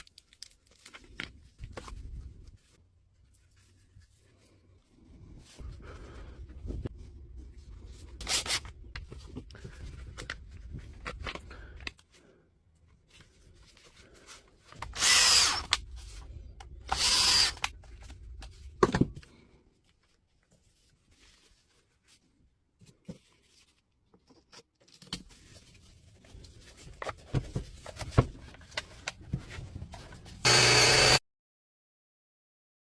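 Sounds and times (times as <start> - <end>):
power tool running bursts: 30.5 - 31.2.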